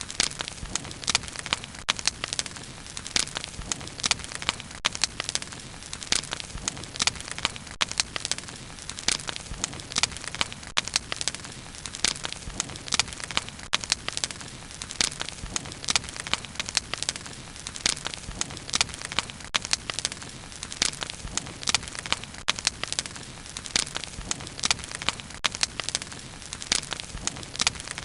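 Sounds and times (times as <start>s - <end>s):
wood crackling and popping: 0.0s - 28.0s.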